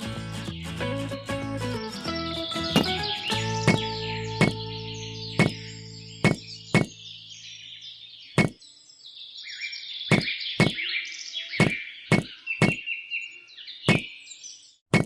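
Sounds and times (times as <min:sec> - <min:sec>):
small birds chirping: 0:02.2 - 0:15.0
sharp knocks: 0:02.8 - 0:03.1.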